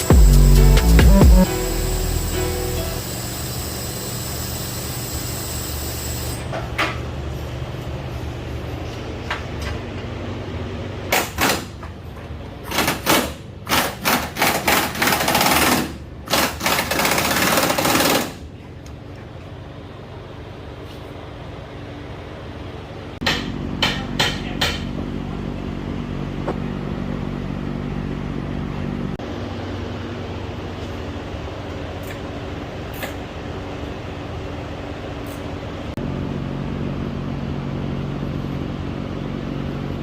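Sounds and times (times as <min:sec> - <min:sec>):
steady machine hum: 0:00.0 - 0:11.1.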